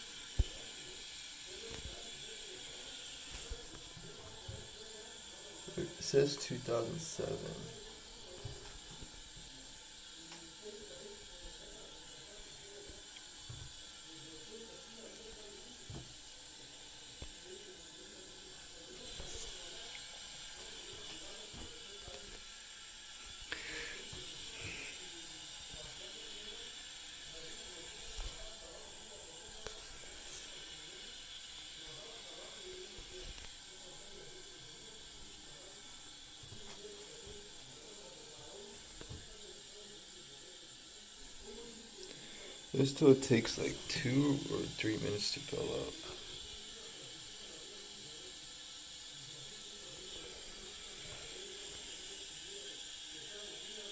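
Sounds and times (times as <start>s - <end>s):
toilet fill valve hissing: 0.0s - 53.9s.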